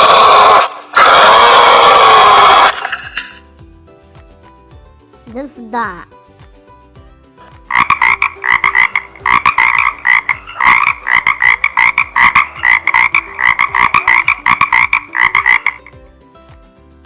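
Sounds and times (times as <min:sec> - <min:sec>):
frog croaking: 0:00.0 - 0:03.3, 0:07.7 - 0:16.0.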